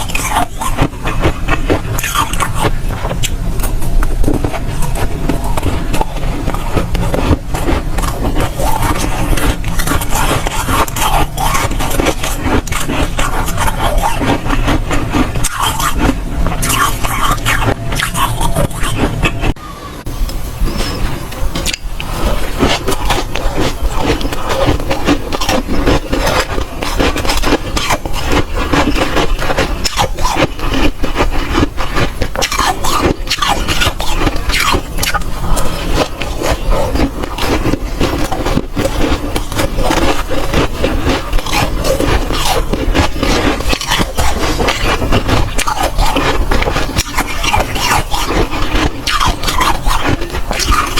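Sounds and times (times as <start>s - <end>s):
crunching and chewing frost ice: 0.0s - 20.0s, 20.7s - 50.9s.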